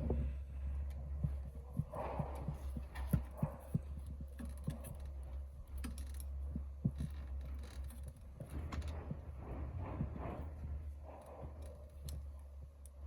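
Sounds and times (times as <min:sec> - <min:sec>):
low hum: 0:00.0 - 0:13.0
light clicks and knocks: 0:00.8 - 0:09.3.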